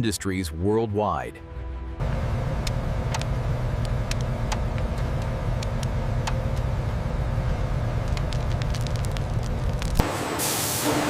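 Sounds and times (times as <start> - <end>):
low mechanical rumble: 1.6 - 10.1
faint hum: 2.0 - 10.0.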